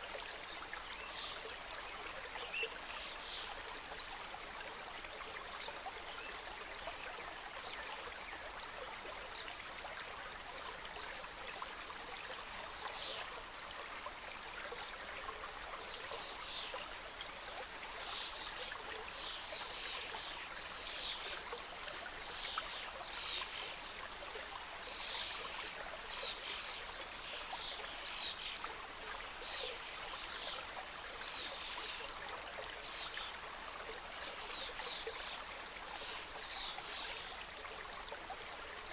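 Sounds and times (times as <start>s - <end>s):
stream cascading: 0.0s - 38.9s.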